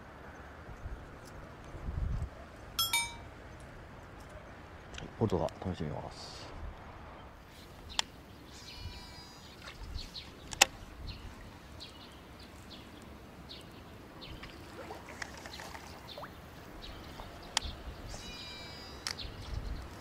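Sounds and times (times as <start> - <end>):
small birds chirping: 7.2 - 14.8, 15.4 - 20.0.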